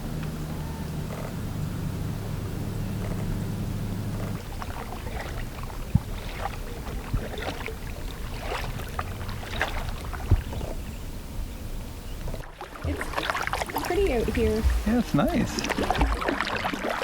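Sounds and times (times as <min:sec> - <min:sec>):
low steady drone: 0:00.0 - 0:06.0
paddle splashing and dripping: 0:02.9 - 0:11.0, 0:12.1 - 0:17.0
paddle knocking on hull: 0:04.1 - 0:10.8, 0:12.4 - 0:16.9.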